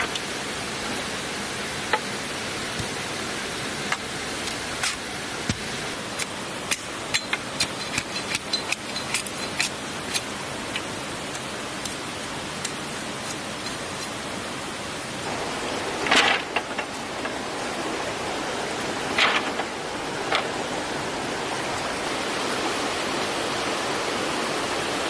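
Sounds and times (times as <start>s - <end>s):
flowing stream: 0.0s - 25.0s
rustle or scrape: 15.8s - 17.4s, 19.1s - 20.6s.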